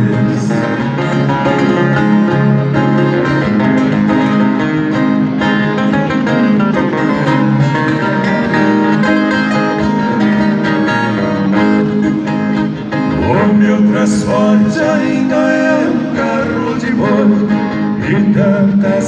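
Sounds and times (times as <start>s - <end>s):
plucked acoustic string instruments: 0.0s - 19.0s.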